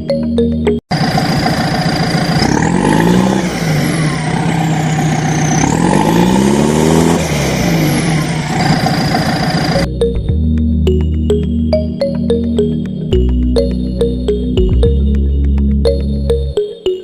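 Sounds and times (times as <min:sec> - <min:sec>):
tractor engine revving: 0:00.9 - 0:09.9.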